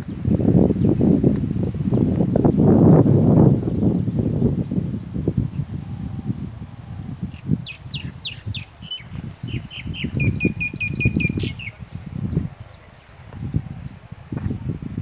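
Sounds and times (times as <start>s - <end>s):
bird calling: 5.8s - 13.8s.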